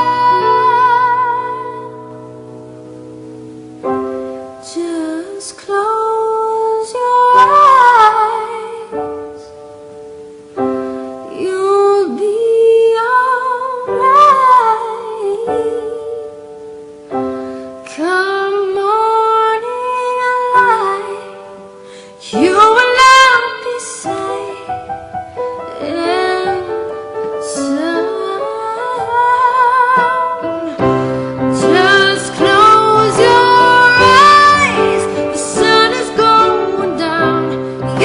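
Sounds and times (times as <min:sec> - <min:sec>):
person singing long notes: 0:00.0 - 0:02.4, 0:25.7 - 0:38.0.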